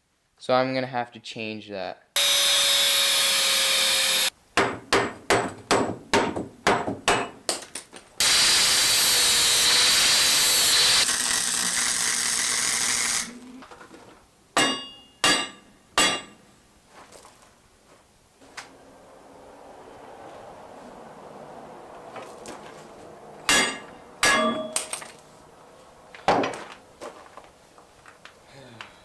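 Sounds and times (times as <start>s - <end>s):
power tool running: 2.2s - 4.3s, 8.2s - 13.3s
hammer blows on metal: 14.6s - 16.4s, 23.5s - 24.9s
ringing clanks of struck metal: 14.6s - 16.4s, 23.5s - 25.2s.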